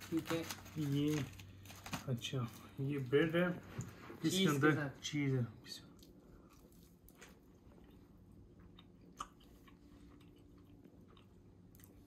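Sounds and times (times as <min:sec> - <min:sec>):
soft chewing mouth clicks: 0:05.9 - 0:12.0.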